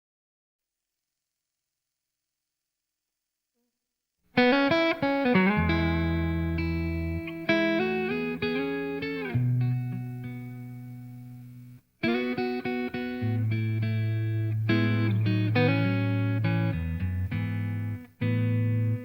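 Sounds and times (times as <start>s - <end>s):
blues guitar music: 4.4s - 19.0s.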